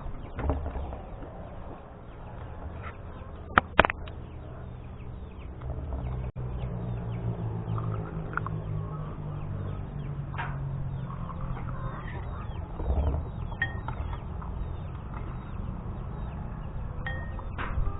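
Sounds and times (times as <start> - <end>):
chickens clucking: 0.0 - 17.9
low steady hum: 0.0 - 17.9
small birds chirping: 0.0 - 17.9.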